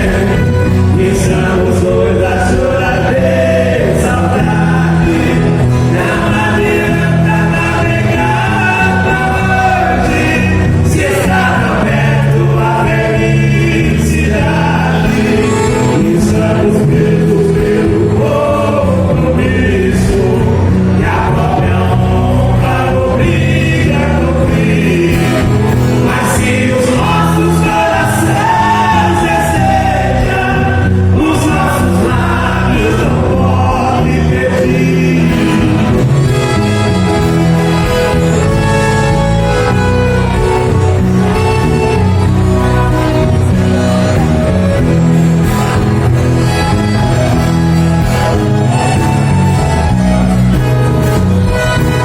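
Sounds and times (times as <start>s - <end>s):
person singing: 0.0s - 36.6s
instrumental accompaniment: 0.0s - 52.0s.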